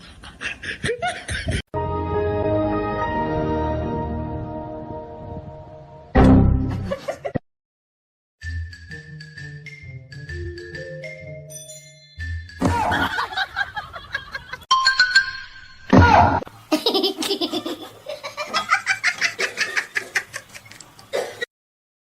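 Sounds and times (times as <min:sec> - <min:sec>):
person laughing hard: 0:00.2 - 0:01.6, 0:06.7 - 0:07.4, 0:12.6 - 0:14.6.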